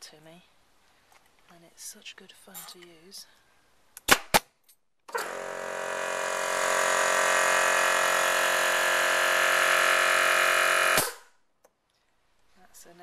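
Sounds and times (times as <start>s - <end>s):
air compressor motor running: 5.1s - 11.2s.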